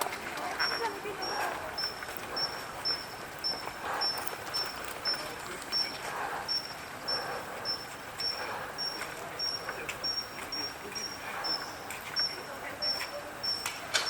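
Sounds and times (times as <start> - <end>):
kingfisher fledglings calling: 0.7 - 6.7.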